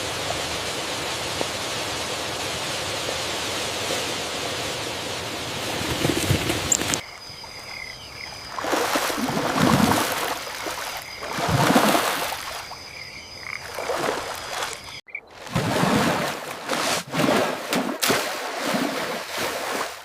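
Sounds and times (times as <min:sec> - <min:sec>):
river water washing: 0:00.0 - 0:20.0
faint high-pitched wildlife calls: 0:06.7 - 0:15.3.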